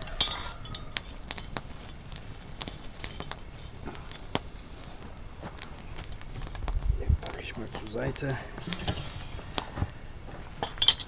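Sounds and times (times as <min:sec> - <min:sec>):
campfire crackling and popping: 0:00.0 - 0:11.0
hissing burst: 0:06.6 - 0:10.3.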